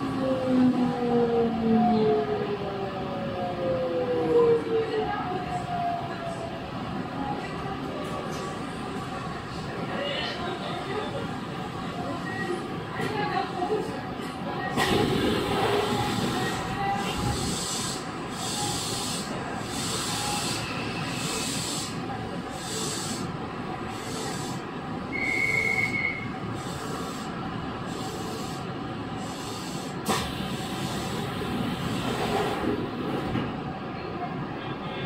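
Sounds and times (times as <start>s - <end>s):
train wheels rumbling on rails: 27.8s - 33.8s.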